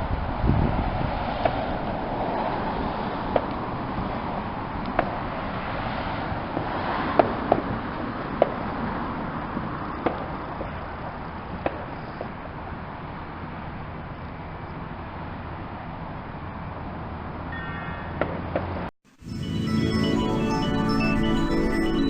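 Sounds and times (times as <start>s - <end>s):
outdoor background noise: 0.0s - 19.2s
distant fireworks popping: 3.2s - 13.7s.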